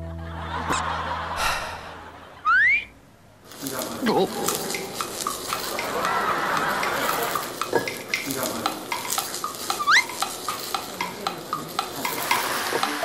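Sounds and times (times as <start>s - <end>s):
egg and tomato sizzling: 3.5s - 13.0s
spatula scraping and tapping pan: 4.3s - 13.0s.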